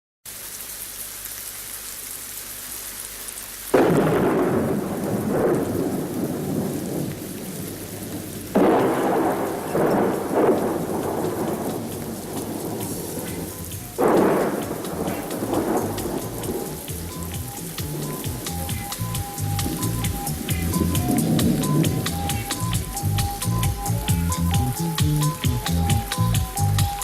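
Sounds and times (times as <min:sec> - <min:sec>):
steady rain falling: 0:00.3 - 0:27.0
thunder rumbling: 0:03.8 - 0:27.0.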